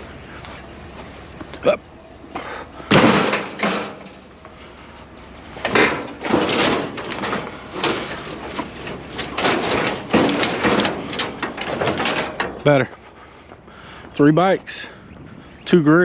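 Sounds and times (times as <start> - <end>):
scrap metal clanking and scraping: 2.3 - 13.5.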